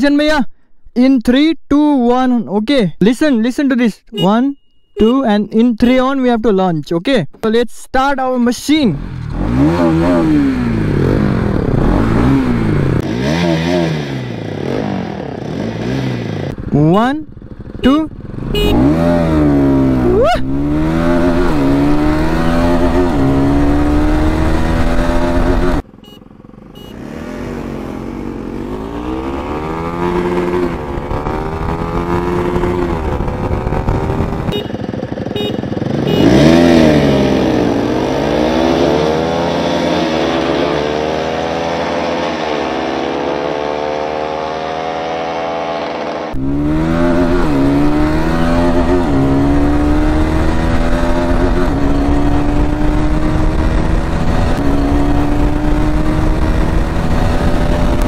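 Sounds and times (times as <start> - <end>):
motorcycle engines accelerating hard: 8.7 - 58.0.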